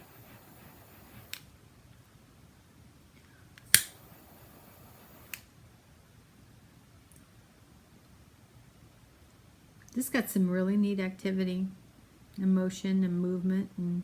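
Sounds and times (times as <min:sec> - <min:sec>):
sharp clicks: 0:00.0 - 0:01.5, 0:03.6 - 0:05.5
low room hiss: 0:00.0 - 0:14.0.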